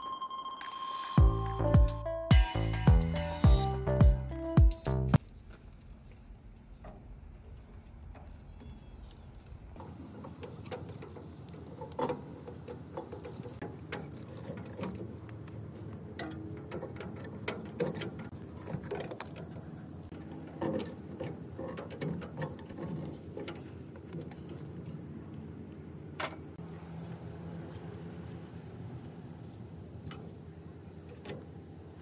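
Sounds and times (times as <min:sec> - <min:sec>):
clicks and light metal knocks: 0:08.1 - 0:25.5.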